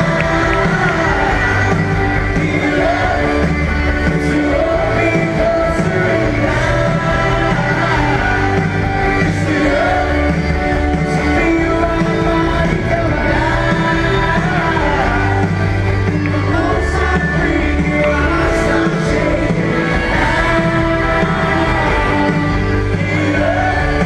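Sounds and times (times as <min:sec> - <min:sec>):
live pop-rock band with singing: 0:00.0 - 0:24.0.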